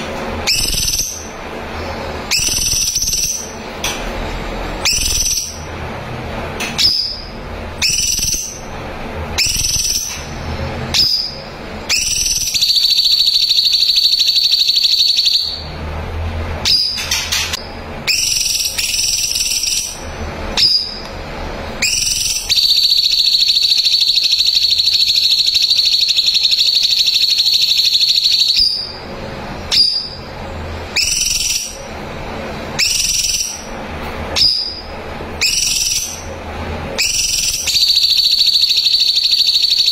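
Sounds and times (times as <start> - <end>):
bulbul singing whistled notes: 0.4 - 1.3, 2.3 - 3.5, 4.8 - 5.6, 6.8 - 8.6, 9.4 - 10.2, 10.9 - 15.6, 21.8 - 29.0
rapid high bird trills: 2.3 - 3.6.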